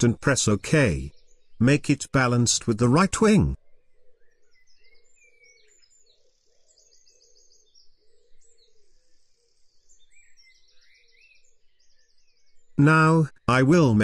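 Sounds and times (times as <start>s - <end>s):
bird chirps and trills: 3.6s - 14.0s.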